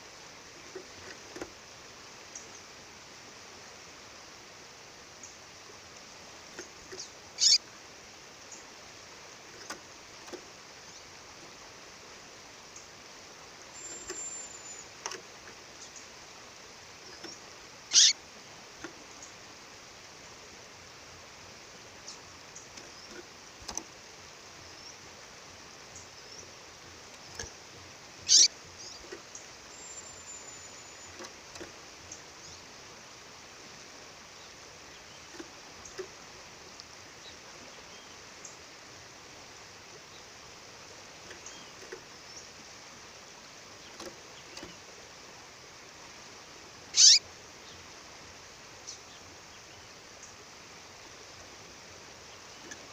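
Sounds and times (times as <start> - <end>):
bird high chirps: 7.0 - 7.6, 13.8 - 15.0, 17.1 - 18.2, 28.2 - 29.1, 29.7 - 31.3, 47.0 - 47.2.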